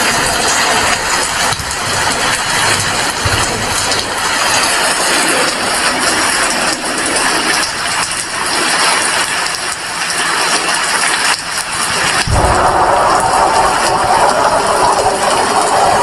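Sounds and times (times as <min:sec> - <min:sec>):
rain falling steadily: 0:00.0 - 0:16.0.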